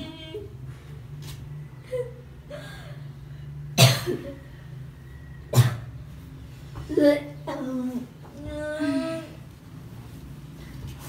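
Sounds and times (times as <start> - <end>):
steady low hum: 0.0 - 11.0
person coughing: 3.8 - 4.4.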